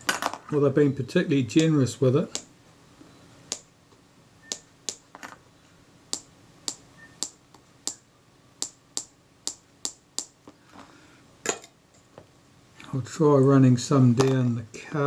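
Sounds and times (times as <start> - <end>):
light taps on small metal parts: 6.1 - 8.0.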